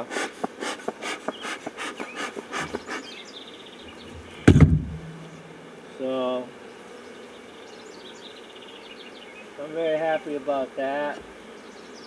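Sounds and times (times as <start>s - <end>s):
loud thump: 3.9s - 5.8s
short clicks and knocks: 4.0s - 5.6s.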